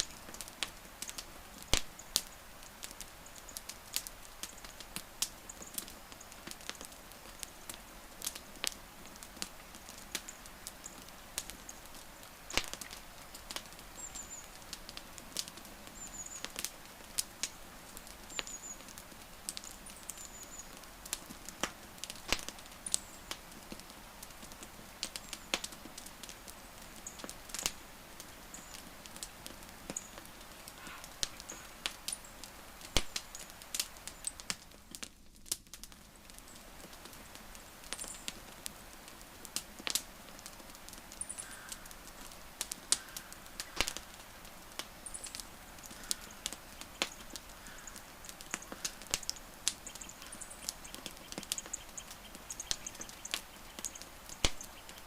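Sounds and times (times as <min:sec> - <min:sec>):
wood fire crackling: 0:00.0 - 0:55.0
faint high chirps: 0:30.8 - 0:32.4.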